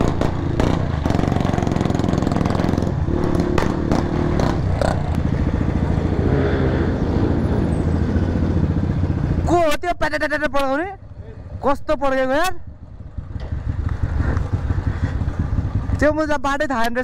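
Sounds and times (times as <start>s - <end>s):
exhaust pops: 0.0s - 5.3s, 13.3s - 15.2s
motorcycle engine running: 0.0s - 17.0s.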